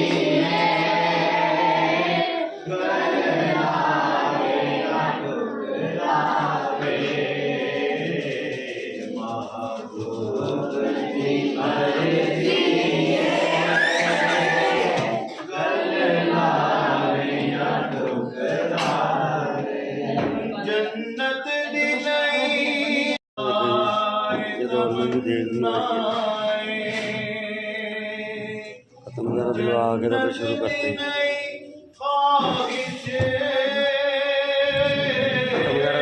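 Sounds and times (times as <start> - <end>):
children chanting in unison: 0.0 - 21.0.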